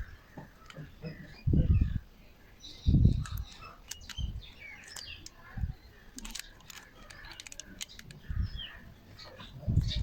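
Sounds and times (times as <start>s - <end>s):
birds chirping: 0.0s - 10.0s
small metal parts clicking: 3.2s - 5.4s, 6.1s - 8.2s.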